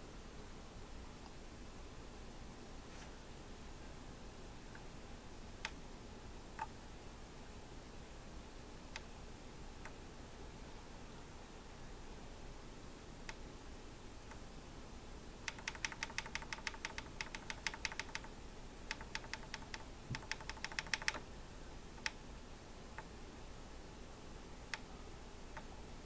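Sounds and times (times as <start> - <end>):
keyboard keys clicking: 15.5 - 18.3, 18.9 - 21.2.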